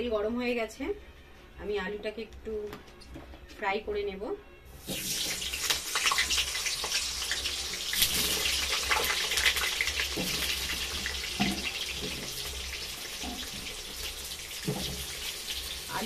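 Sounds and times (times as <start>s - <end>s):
potatoes sizzling in hot oil: 4.8s - 16.0s.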